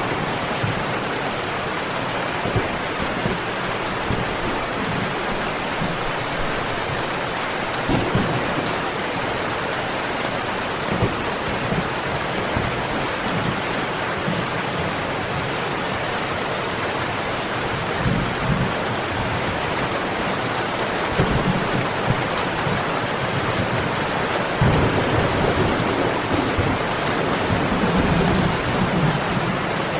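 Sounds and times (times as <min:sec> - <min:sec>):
steady rain: 0:00.0 - 0:29.9
low rumbles of thunder: 0:07.8 - 0:09.4, 0:24.6 - 0:29.9.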